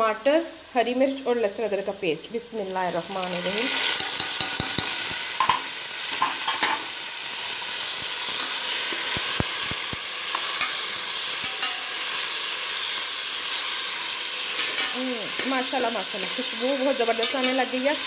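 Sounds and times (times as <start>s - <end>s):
food sizzling in hot fat: 0.0s - 18.0s.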